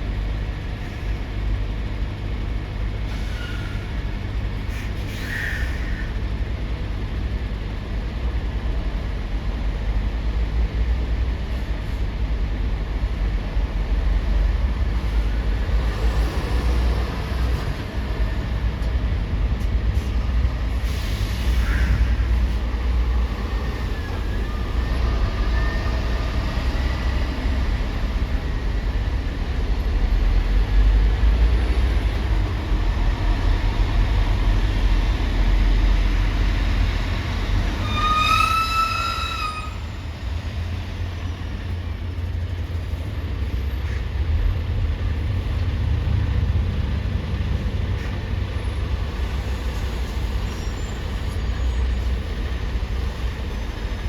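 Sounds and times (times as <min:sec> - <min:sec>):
heavy vehicles rumbling: 0:00.0 - 0:54.0
high-pitched squeal: 0:37.7 - 0:40.1.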